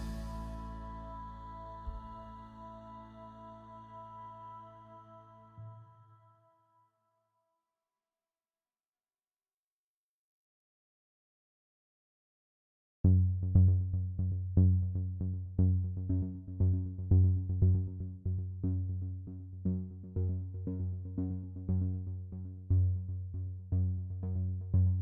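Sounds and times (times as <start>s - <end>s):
electronic synthesizer music: 0.0s - 6.5s.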